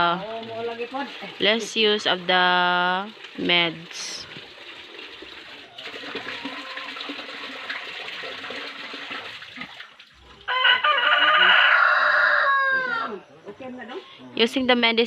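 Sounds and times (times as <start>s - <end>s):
water running: 0.0s - 10.5s
rooster crowing: 6.0s - 7.1s, 10.4s - 13.2s.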